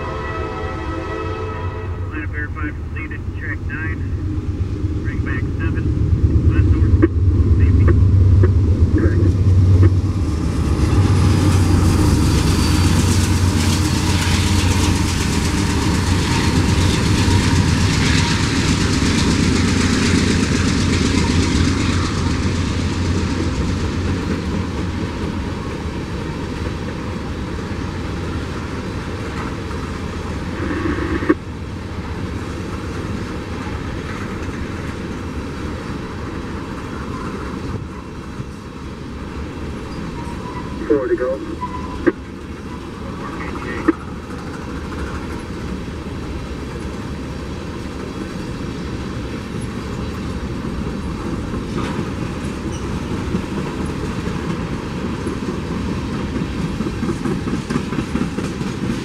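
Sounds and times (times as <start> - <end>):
freight train rolling past: 0.0 - 59.0.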